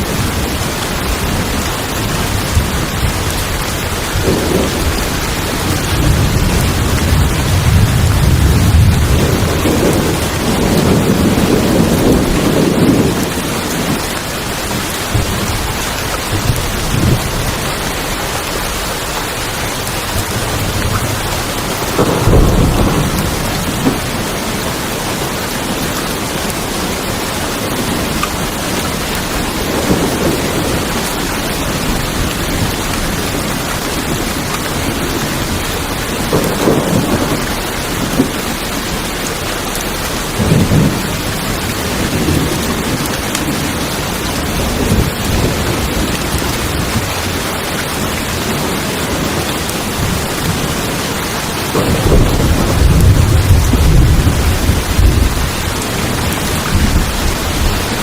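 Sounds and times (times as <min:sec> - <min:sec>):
heavy rain on tin roofs: 0:00.0 - 0:58.0
thunder rumbling: 0:00.0 - 0:58.0.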